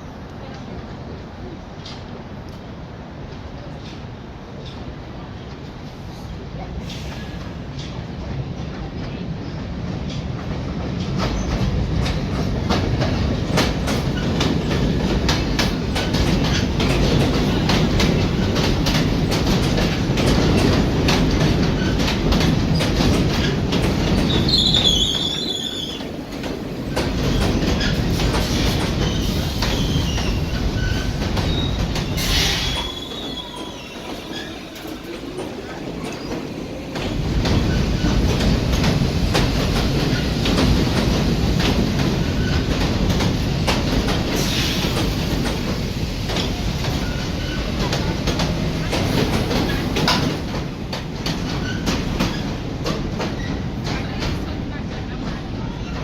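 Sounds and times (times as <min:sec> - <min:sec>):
subway train rumbling: 0:00.0 - 0:56.0
wheels clicking over rail joints: 0:10.1 - 0:54.4
high wheel squeal: 0:24.3 - 0:26.0, 0:29.0 - 0:34.9.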